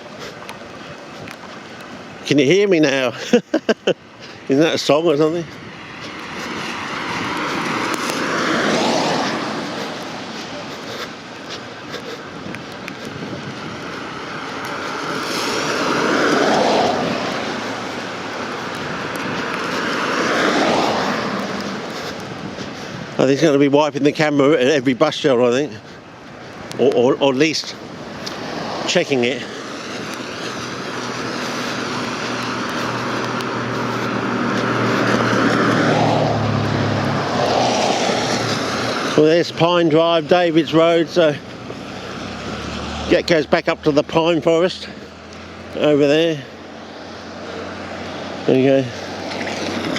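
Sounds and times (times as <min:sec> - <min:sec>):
vehicle passing: 0:00.0 - 0:49.9.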